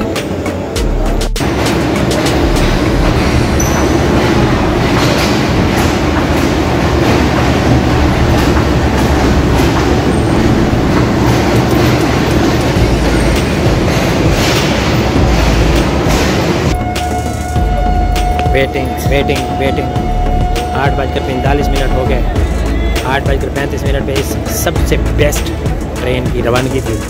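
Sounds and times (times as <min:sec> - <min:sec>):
train rumble: 0:00.8 - 0:27.0
train wheels clicking on rail joints: 0:01.4 - 0:16.8.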